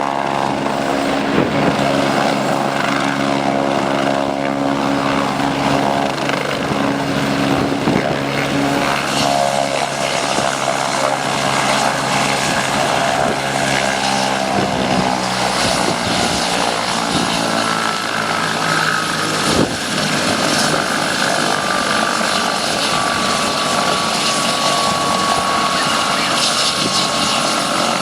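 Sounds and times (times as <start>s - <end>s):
aircraft engine drone: 0.0s - 28.0s
high whine falling in pitch: 21.8s - 27.2s.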